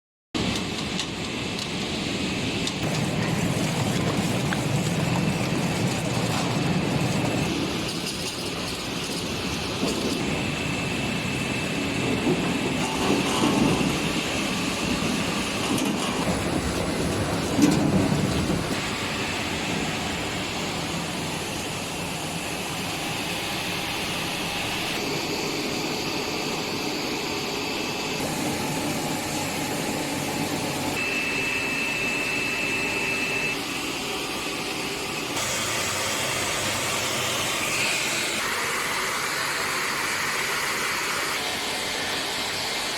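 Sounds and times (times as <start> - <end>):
deseeding machine running: 2.8 - 42.9
faint high whine: 18.8 - 33.9.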